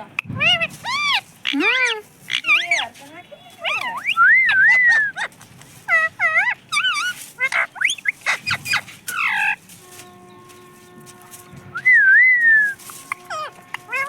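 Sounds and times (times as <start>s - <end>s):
parrot chirps and squawks: 0.2s - 9.6s, 12.7s - 14.0s
parrot wavering whistle: 3.6s - 5.3s, 11.7s - 14.0s.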